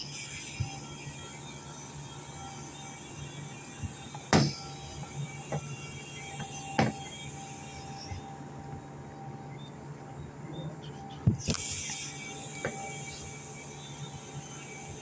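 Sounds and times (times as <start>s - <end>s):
steady low hum: 0.0s - 15.0s
metal knocks and clanks: 4.3s - 4.7s, 6.4s - 7.1s.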